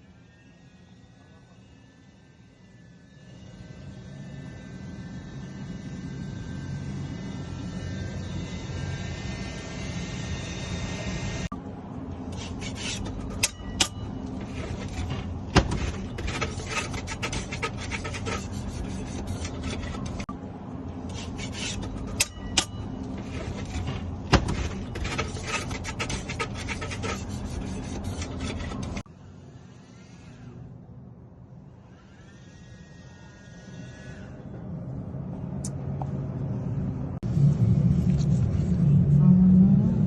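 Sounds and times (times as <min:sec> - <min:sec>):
steady low hum: 0:00.0 - 0:40.0
hand tool scraping mortar: 0:12.4 - 0:20.3, 0:21.1 - 0:29.1.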